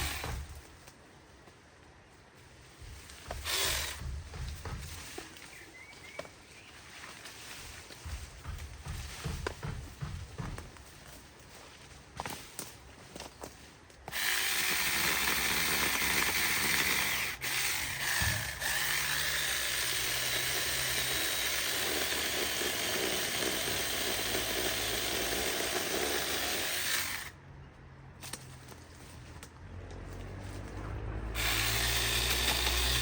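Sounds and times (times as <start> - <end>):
chainsaw cutting: 0.0 - 0.6, 3.2 - 5.0, 14.1 - 27.4, 30.6 - 33.0.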